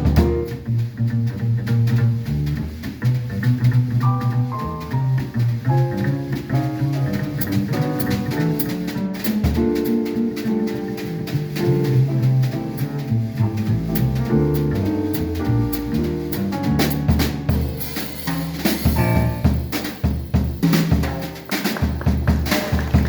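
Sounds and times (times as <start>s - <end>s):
double bass: 0.0s - 23.0s
drum kit with cymbals: 0.0s - 23.0s.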